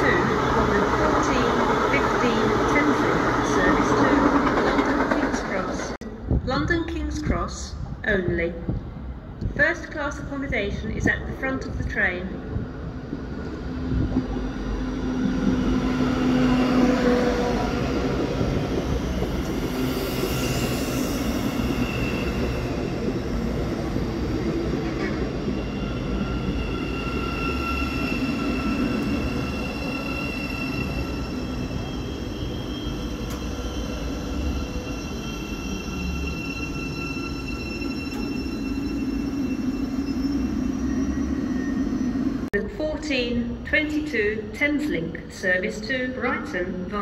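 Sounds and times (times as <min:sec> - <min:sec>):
train wheel rumble: 0:00.0 - 0:06.5, 0:10.9 - 0:39.6
electric train whine: 0:12.4 - 0:42.6.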